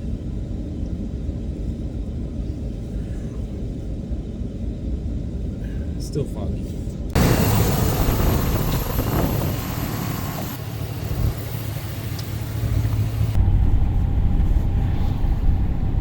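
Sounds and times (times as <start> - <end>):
van engine hum: 6.7 - 16.0.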